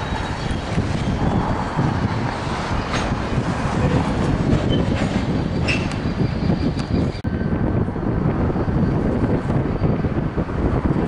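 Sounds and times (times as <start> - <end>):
high wheel squeal: 0.0 - 7.5
freight train rumbling: 0.0 - 11.0.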